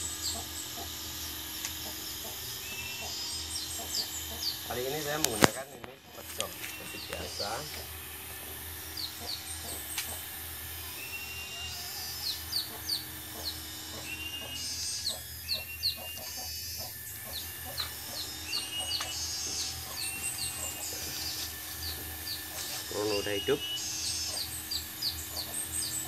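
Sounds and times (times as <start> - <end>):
birds chirping: 0.0 - 26.0
whistled bird notes: 6.4 - 7.9, 10.8 - 26.0.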